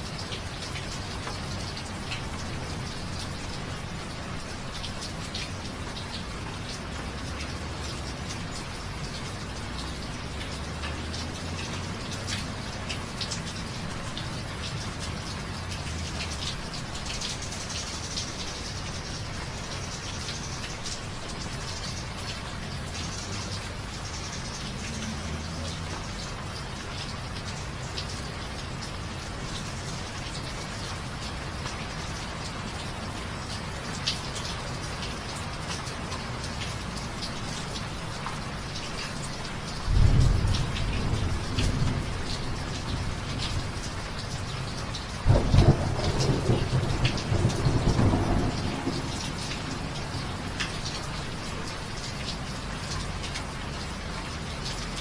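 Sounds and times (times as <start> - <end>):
raindrops ticking nearby: 0.0 - 55.0
steady rain: 0.0 - 55.0
thunder rumbling: 39.9 - 43.8, 45.3 - 50.2.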